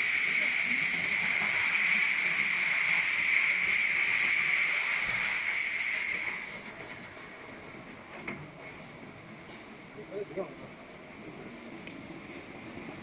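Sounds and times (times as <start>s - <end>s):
water jets spraying: 0.0s - 6.7s.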